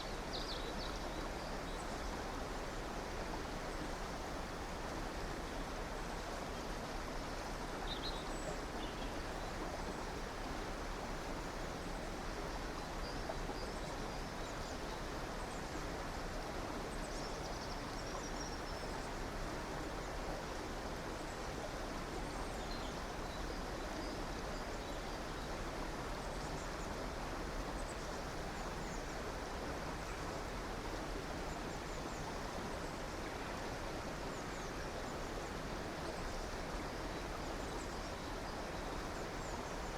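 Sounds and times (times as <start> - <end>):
river water rushing: 18.8 - 39.9.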